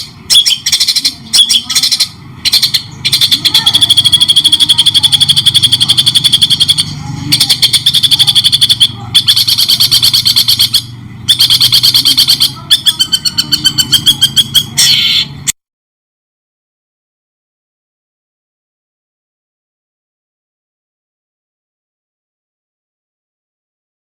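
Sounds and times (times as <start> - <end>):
songbird singing rapid high notes: 0.0 - 15.5
steady low hum: 0.0 - 15.5.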